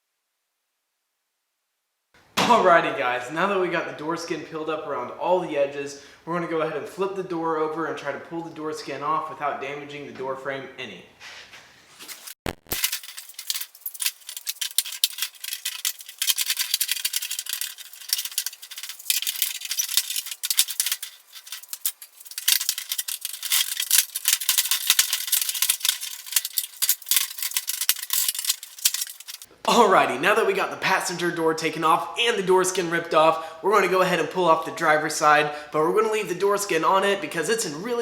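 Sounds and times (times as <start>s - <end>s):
metallic clinks and rattles: 12.7s - 29.5s.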